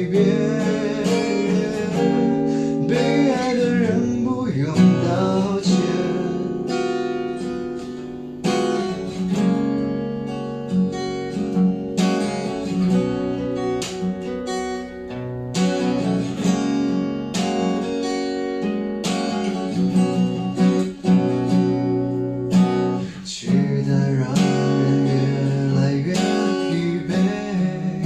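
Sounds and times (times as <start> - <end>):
acoustic guitar strumming chords: 0.0 - 28.0.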